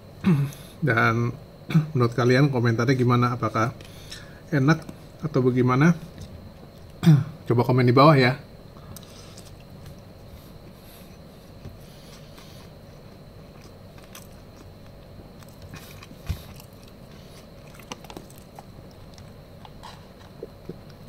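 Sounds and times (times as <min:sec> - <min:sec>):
person chewing food: 0:08.8 - 0:21.0.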